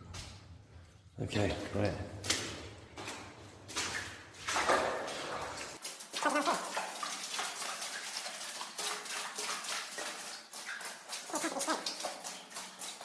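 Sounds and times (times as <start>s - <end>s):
footsteps squelching in mud: 0.0s - 6.7s.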